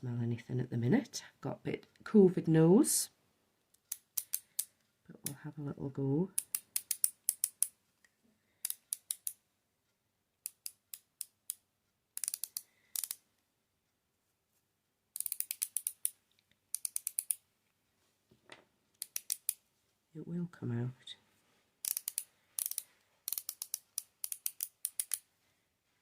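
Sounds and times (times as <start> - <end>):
oil pen ratchet clicks: 3.8 - 4.7, 6.4 - 7.8, 8.6 - 9.4, 10.4 - 11.6, 12.2 - 13.2, 15.2 - 17.4, 19.0 - 19.6, 21.8 - 25.2.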